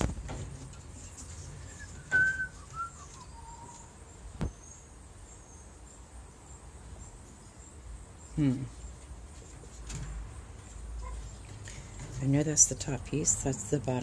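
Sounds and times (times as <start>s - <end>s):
bird whistling: 1.6s - 3.9s.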